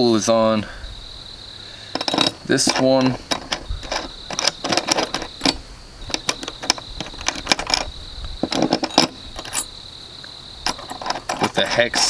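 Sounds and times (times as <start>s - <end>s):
cricket trill: 0.0s - 12.0s
metal hardware clinking: 1.9s - 9.8s, 10.6s - 12.0s.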